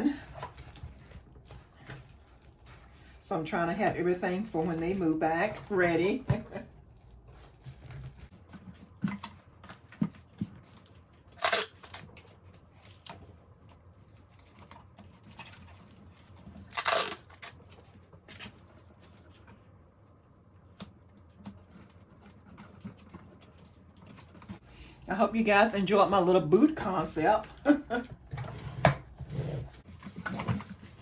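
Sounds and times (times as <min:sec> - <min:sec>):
small clicks and rustles: 0:00.2 - 0:03.2, 0:03.8 - 0:24.6
paper tearing: 0:11.3 - 0:12.2, 0:16.7 - 0:17.7.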